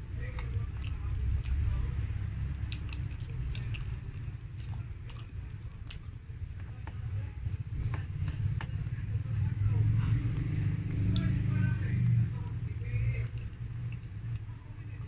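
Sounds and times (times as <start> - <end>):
wet chewing and lip smacks: 2.6 - 7.0, 10.4 - 11.5.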